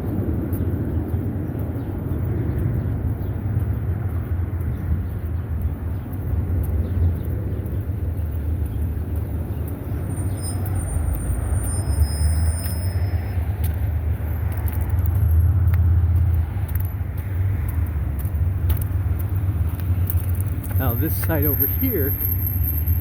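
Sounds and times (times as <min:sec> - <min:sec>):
rumble of passing traffic: 0:00.0 - 0:23.0
high-pitched squeals: 0:10.2 - 0:13.5, 0:20.8 - 0:23.0.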